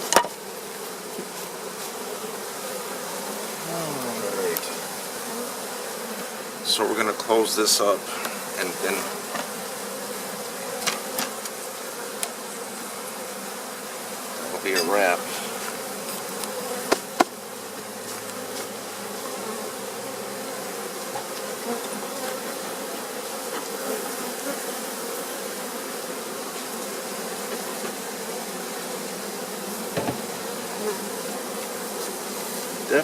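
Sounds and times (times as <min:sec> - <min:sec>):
honey bees buzzing: 0:00.0 - 0:33.0
sharp knocks: 0:16.9 - 0:17.4, 0:30.0 - 0:30.2.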